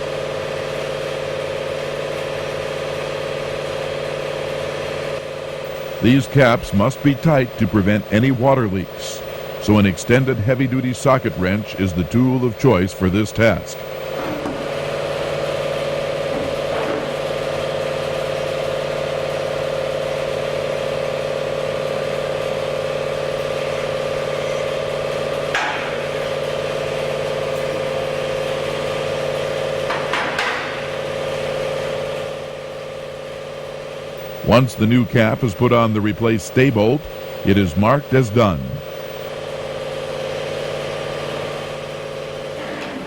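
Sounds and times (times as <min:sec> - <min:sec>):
steady mechanical hum: 0:00.0 - 0:43.0.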